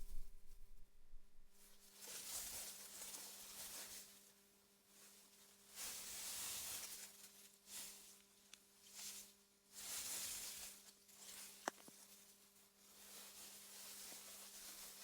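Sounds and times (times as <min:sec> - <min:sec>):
faint low hum: 0:00.0 - 0:01.8.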